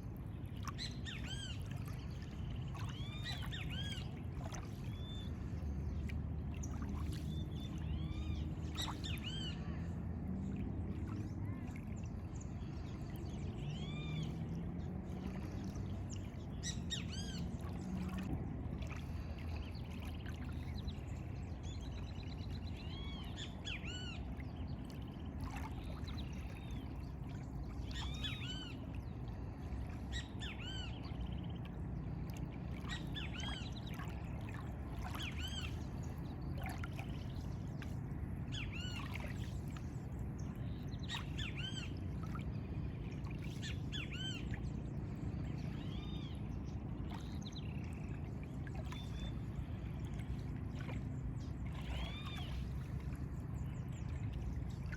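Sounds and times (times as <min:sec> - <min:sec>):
rushing water: 0:00.0 - 0:22.0, 0:22.6 - 0:54.9.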